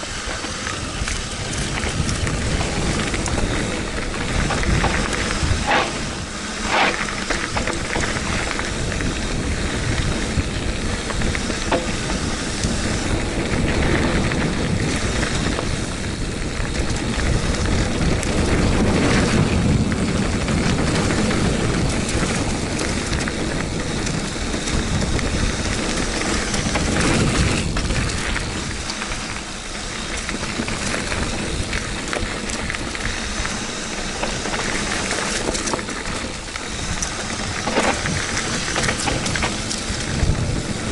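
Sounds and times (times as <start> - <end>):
bike rattling: 0.0 - 40.9
bike tyres rumbling over stones: 0.0 - 40.9
wind on microphone: 0.0 - 40.9.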